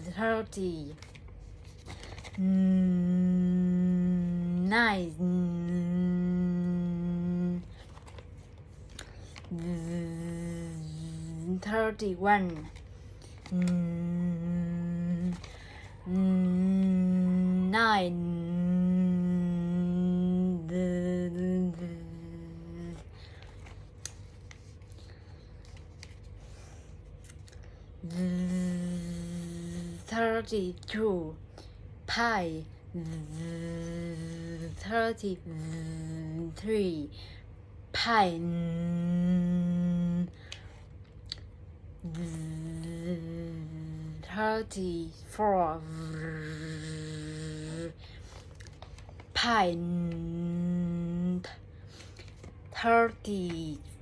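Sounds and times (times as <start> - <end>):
person humming low note: 2.2 - 7.9, 9.4 - 12.6, 13.4 - 23.1, 28.0 - 30.1, 32.9 - 36.8, 38.0 - 40.4, 42.0 - 48.0, 49.4 - 51.6.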